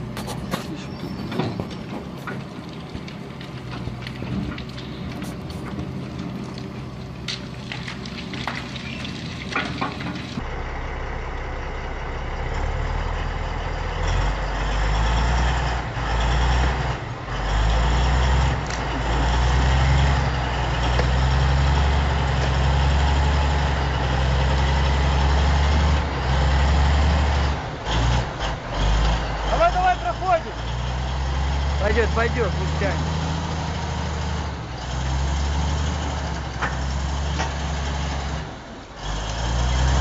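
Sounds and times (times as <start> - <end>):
crackling noise: 0.0 - 14.2
heavy truck engine droning: 0.0 - 40.0.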